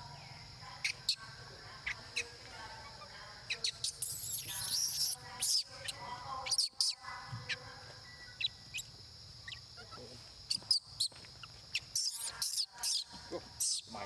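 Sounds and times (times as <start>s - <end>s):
baby monkey squealing: 3.5s - 7.0s, 11.7s - 13.9s.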